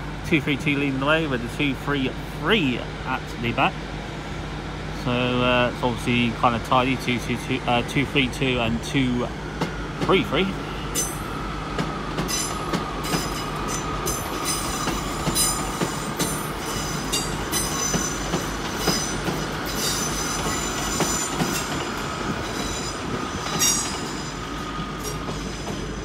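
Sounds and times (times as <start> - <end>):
diesel train engines whining: 0.0 - 26.0
wheels squealing on rails: 9.6 - 26.0.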